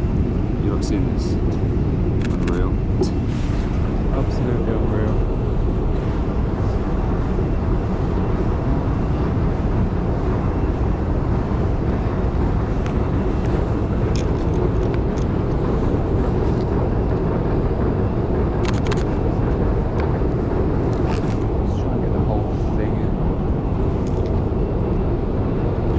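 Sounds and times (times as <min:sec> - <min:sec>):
city traffic rumble: 0:00.0 - 0:25.9.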